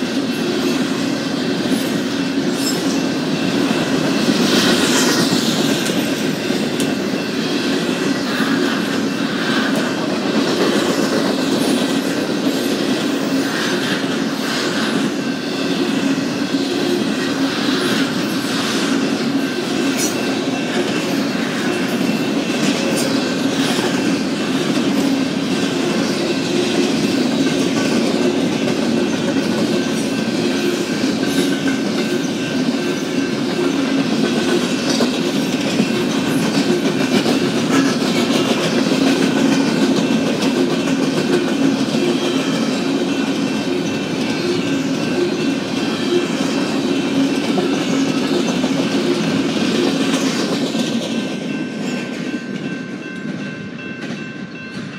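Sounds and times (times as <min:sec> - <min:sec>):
freight train rumble and rattle: 0:00.0 - 0:54.9
wheels clacking over rails: 0:18.0 - 0:54.3.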